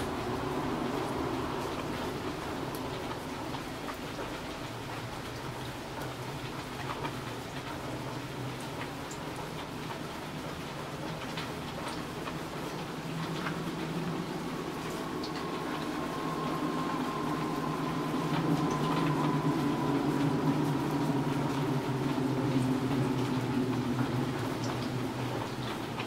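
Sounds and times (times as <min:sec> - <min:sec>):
rain falling: 0:00.0 - 0:26.0
low steady rumble: 0:11.5 - 0:26.0.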